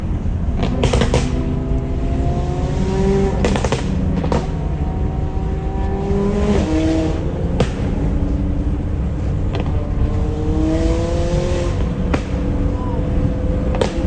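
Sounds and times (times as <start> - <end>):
exhaust cracks: 0.0 - 14.0
low road rumble: 0.0 - 14.0
sports car engine accelerating: 0.0 - 14.0.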